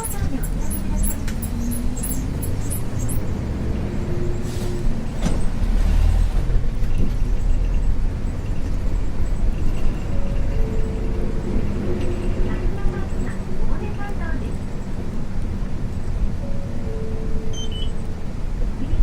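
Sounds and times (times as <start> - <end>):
bus diesel engine drone: 0.0 - 19.0.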